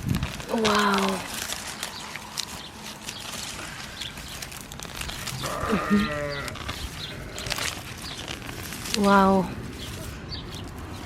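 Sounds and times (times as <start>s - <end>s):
faint rustling: 0.1s - 11.0s
farm animal quavering bleat: 5.3s - 7.7s.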